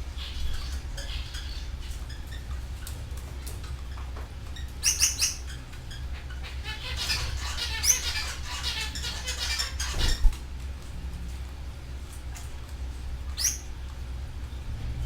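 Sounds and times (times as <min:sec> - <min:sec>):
canary twittering song: 0:00.0 - 0:02.9, 0:03.8 - 0:10.4, 0:13.3 - 0:14.0
canaries calling: 0:00.0 - 0:10.4, 0:13.2 - 0:13.9
steady low hum: 0:00.0 - 0:15.0.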